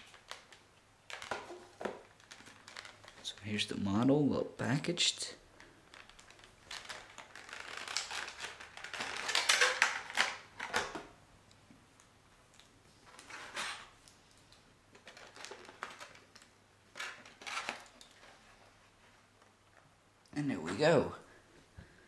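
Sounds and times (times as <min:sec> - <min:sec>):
packaging rustling: 0:00.0 - 0:03.6, 0:05.5 - 0:11.1, 0:13.0 - 0:19.5.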